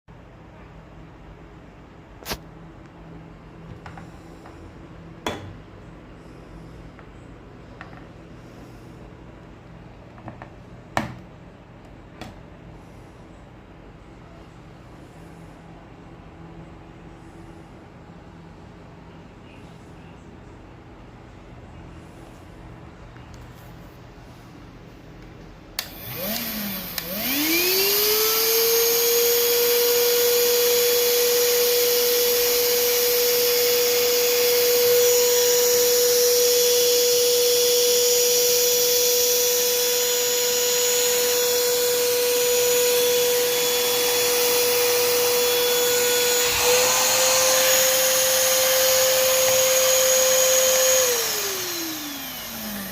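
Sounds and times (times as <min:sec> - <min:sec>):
handheld vacuum motor whining: 0:25.8 - 0:52.9.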